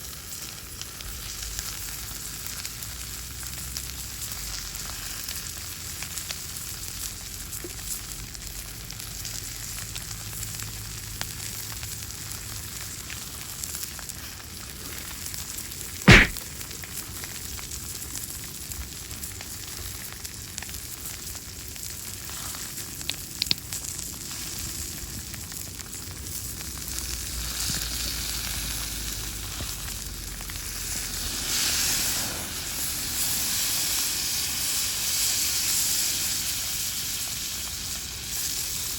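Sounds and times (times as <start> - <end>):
sharp loud crack: 16.1 - 16.4
steak sizzling: 16.1 - 16.4.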